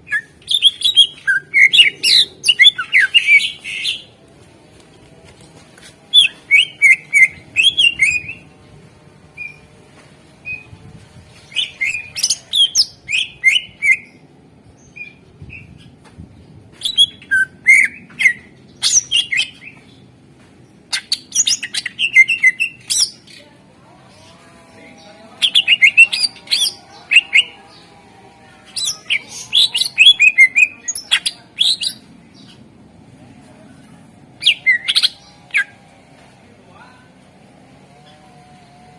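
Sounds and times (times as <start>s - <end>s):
bird singing chirps and whistles: 0.1s - 4.0s, 6.1s - 8.4s, 11.5s - 14.1s, 16.8s - 19.7s, 20.9s - 23.2s, 28.8s - 32.0s.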